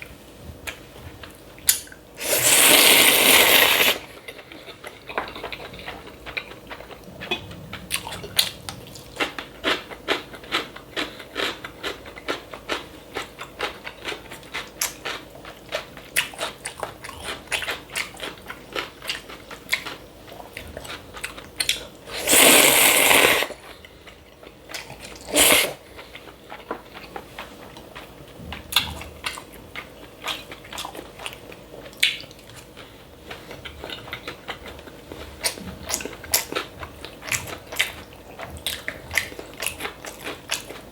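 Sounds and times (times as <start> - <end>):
wet chewing and crunching: 0.6 - 40.9
slurping noodles: 2.2 - 4.1, 22.1 - 23.6, 25.2 - 25.8.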